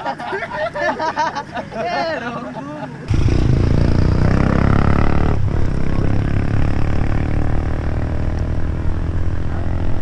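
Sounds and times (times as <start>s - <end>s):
vehicle engine running: 3.1s - 10.0s.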